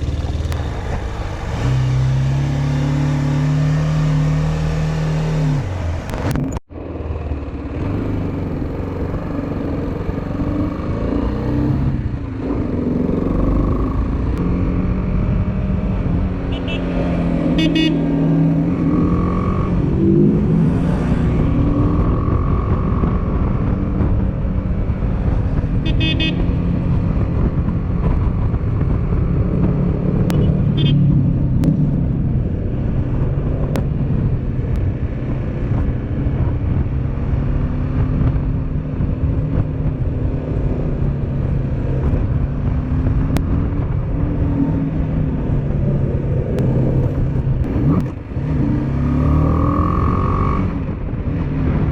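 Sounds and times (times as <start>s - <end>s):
wind noise rushing: 18.2s - 51.9s.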